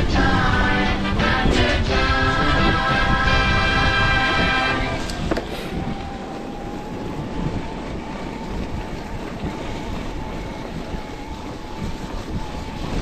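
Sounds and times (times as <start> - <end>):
wind buffeting microphone: 0.0 - 13.0
bike rattling over trail: 6.4 - 13.0.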